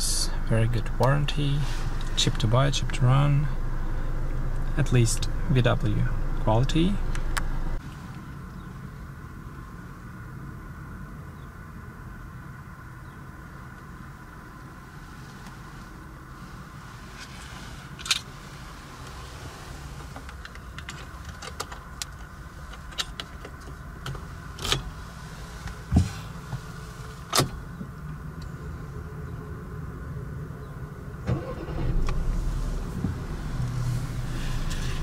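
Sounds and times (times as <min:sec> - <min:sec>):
low rumble: 0:00.0 - 0:07.8, 0:30.6 - 0:35.0
car cabin hum: 0:00.0 - 0:10.0, 0:13.0 - 0:35.0.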